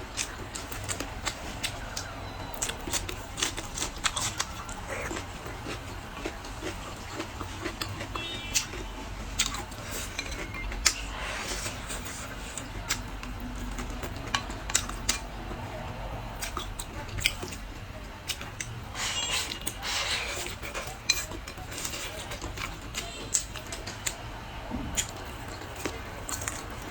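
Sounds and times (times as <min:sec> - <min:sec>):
eating noise: 0:00.0 - 0:26.9
utensils clinking against dishes: 0:00.2 - 0:13.0, 0:18.3 - 0:24.2.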